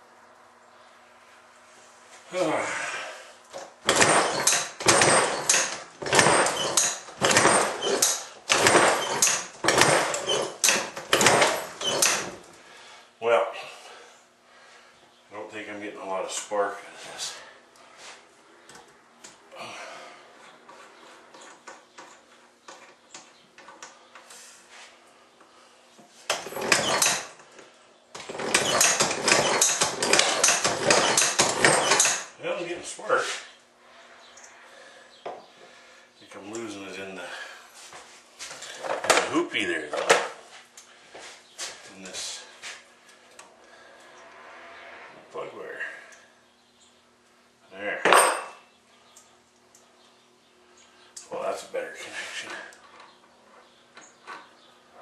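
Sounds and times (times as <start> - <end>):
engine being kicked over: 3.6 - 12.4, 26.3 - 27.4, 28.2 - 32.4.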